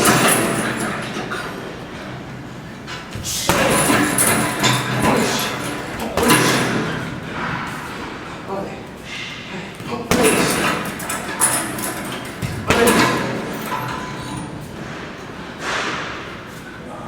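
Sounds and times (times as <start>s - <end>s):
heavy thuds of strikes landing: 3.2s - 7.8s.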